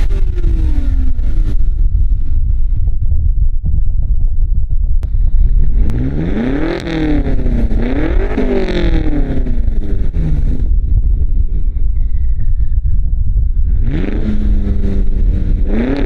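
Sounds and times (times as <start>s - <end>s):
car engine accelerating: 0.0s - 2.6s, 5.0s - 12.8s, 13.6s - 16.0s.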